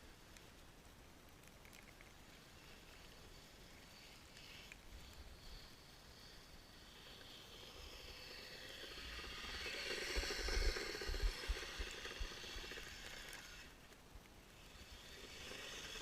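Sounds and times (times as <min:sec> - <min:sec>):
toy snowcat motor whining: 0:02.7 - 0:13.9, 0:14.6 - 0:16.0.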